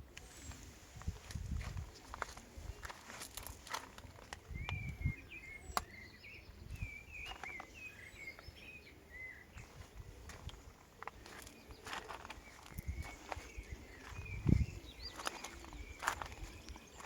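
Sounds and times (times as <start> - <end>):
small bird singing: 0.2 - 17.0
footsteps: 0.5 - 4.4, 9.6 - 17.0.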